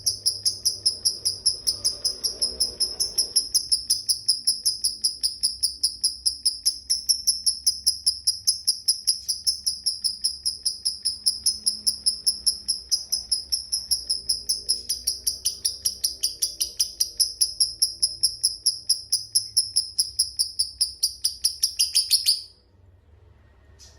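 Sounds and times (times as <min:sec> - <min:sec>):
lovebird chattering call: 0:00.0 - 0:22.5.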